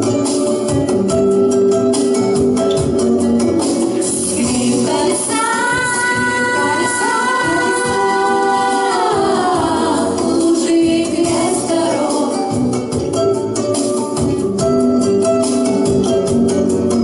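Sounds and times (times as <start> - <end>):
instrumental accompaniment: 0.0 - 17.0
person singing a song: 4.0 - 12.9.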